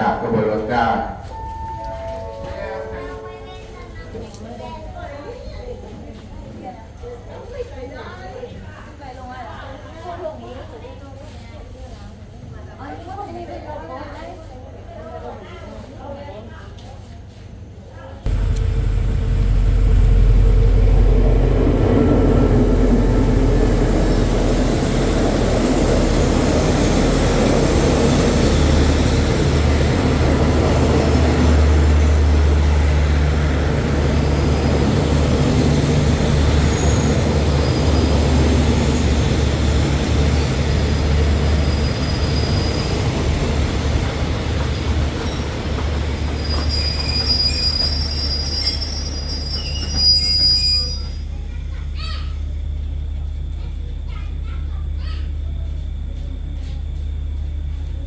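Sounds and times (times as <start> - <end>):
train engine drone: 0.0 - 4.6, 18.3 - 58.0
rail and wheel noise: 0.0 - 12.5, 17.3 - 58.0
high-pitched wheel squeal: 34.2 - 43.2, 45.1 - 51.4.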